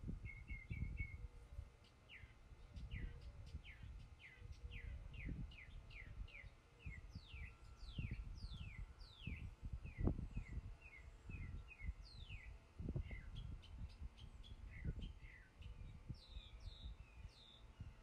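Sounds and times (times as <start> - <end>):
birds chirping: 0.2 - 18.0.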